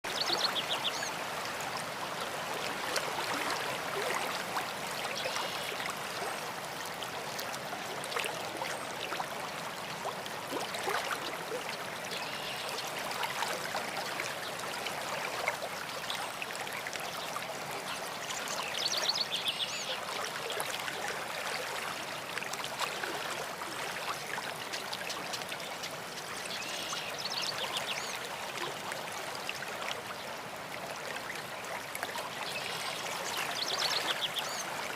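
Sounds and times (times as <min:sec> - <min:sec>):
stream running: 0:00.0 - 0:34.9.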